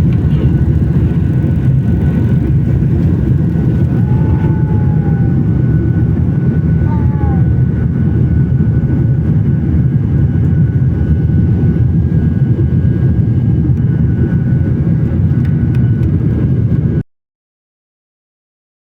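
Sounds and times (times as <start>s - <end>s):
faint steady whine: 0.0s - 13.2s
jet engine rumble in cabin: 0.0s - 17.0s.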